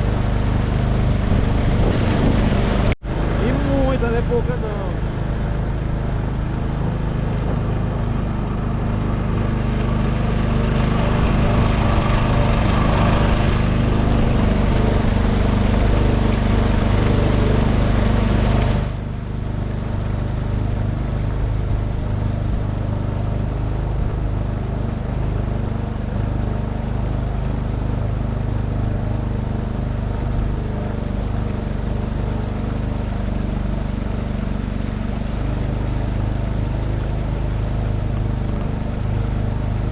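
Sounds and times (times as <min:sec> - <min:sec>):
wind noise: 0:00.0 - 0:03.4
boat motor running: 0:00.0 - 0:39.9
water wash: 0:00.0 - 0:39.9.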